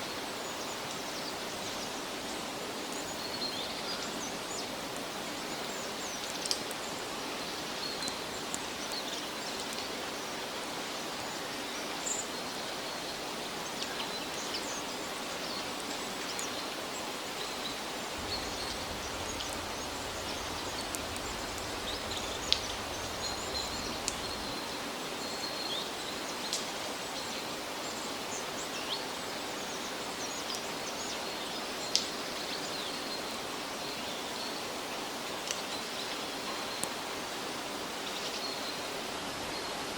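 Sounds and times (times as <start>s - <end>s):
forest ambience hiss: 0.0s - 39.9s
sharp ticks: 18.2s - 24.6s
bird chirps: 18.2s - 24.7s.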